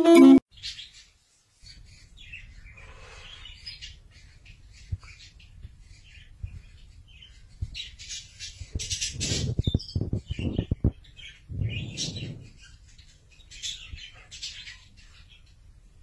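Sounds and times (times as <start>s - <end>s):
bird chirping and squawking: 7.2s - 15.4s.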